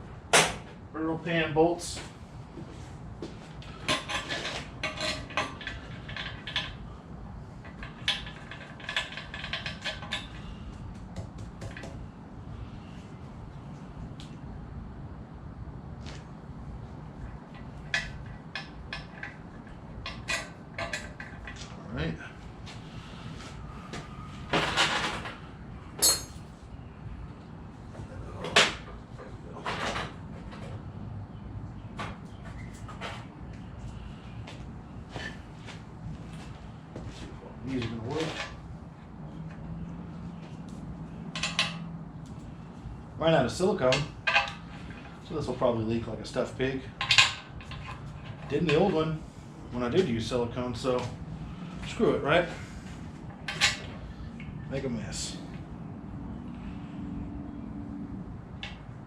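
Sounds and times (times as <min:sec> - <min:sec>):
metal bolts clinking: 0:26.0 - 0:26.5.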